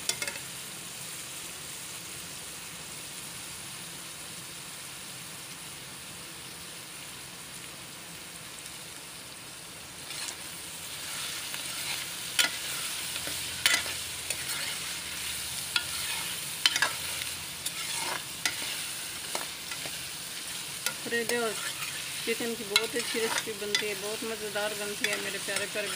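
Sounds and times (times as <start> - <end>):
food sizzling in oil: 0.0 - 25.9
metal spoon scraping a pot: 10.1 - 10.4, 11.1 - 24.0.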